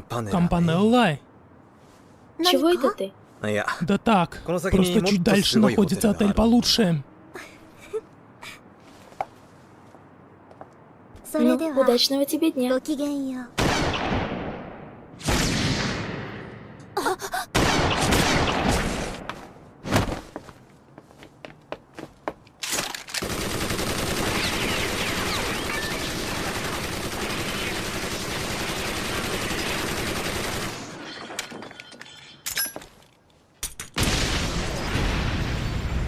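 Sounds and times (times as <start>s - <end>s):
sharp cracks and impacts: 13.6s - 16.6s.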